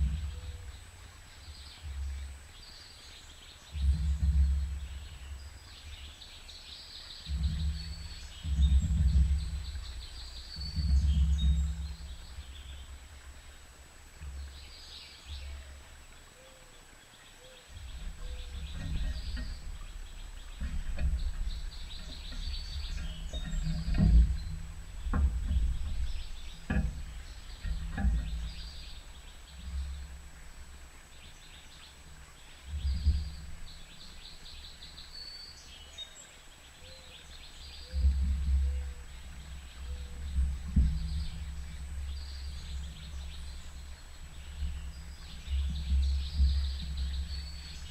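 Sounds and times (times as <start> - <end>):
small birds chirping: 0.0 - 47.9
low rumble: 7.3 - 13.4.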